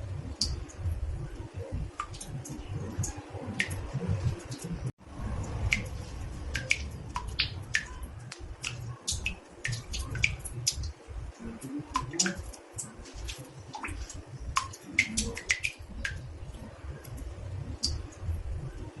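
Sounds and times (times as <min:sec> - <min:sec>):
low steady rumble: 0:00.0 - 0:19.0
water drops plinking in bathtub: 0:00.3 - 0:04.8, 0:05.4 - 0:16.3.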